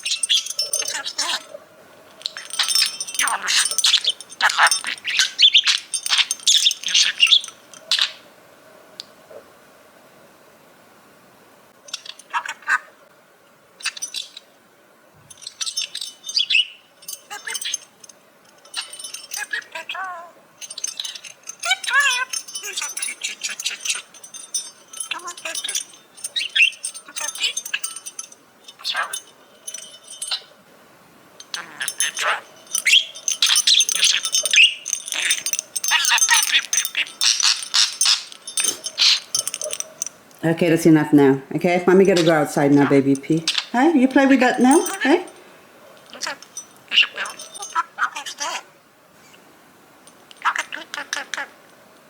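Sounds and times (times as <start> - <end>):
small bell jingling: 0.0 - 8.2, 11.8 - 12.8, 13.8 - 14.5, 15.2 - 48.7, 50.0 - 51.8
budgerigar chattering and warbling: 2.3 - 8.1, 31.5 - 39.3, 50.4 - 51.6.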